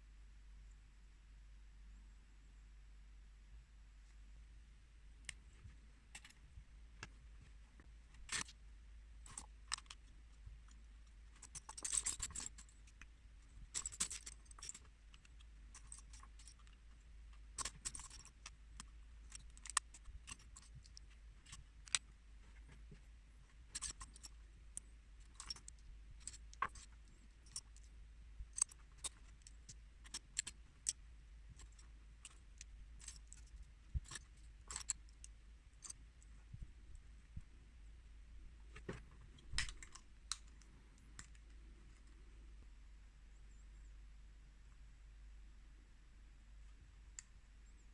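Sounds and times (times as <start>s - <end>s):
plastic bricks clicking: 28.5s - 36.0s.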